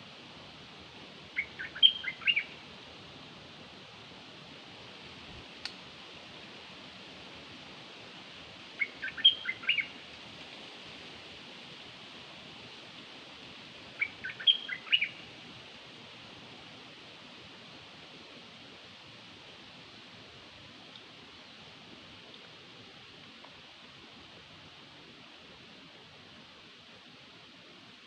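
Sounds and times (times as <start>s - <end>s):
bird chirps: 1.4s - 2.5s, 8.8s - 9.9s, 14.0s - 15.2s.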